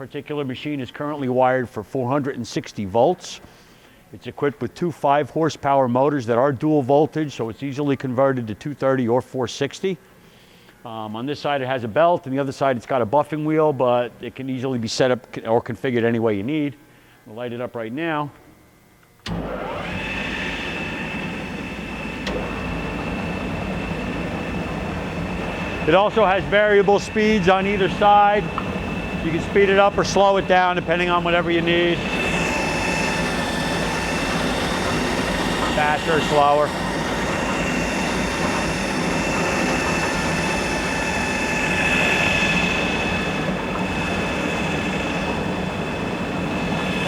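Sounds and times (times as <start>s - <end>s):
low hum: 19.2s - 47.0s
grinding lathe high whine: 19.3s - 47.0s.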